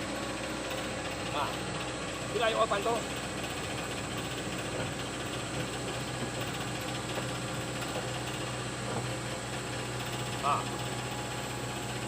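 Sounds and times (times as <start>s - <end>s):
excavator engine idling: 0.0s - 12.0s.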